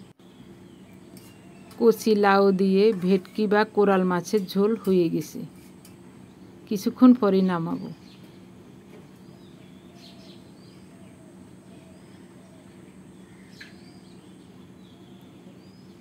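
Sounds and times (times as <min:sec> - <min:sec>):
low steady hum: 0:00.0 - 0:16.0
faint bird chirps: 0:09.1 - 0:16.0.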